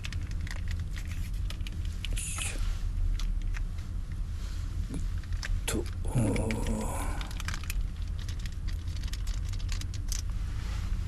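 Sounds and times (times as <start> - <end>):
rain pattering on car roof: 0.0 - 2.5, 5.2 - 10.3.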